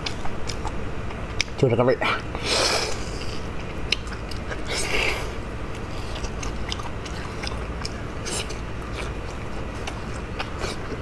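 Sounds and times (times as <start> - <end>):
wet chewing and biting: 0.0 - 1.6, 2.2 - 11.0.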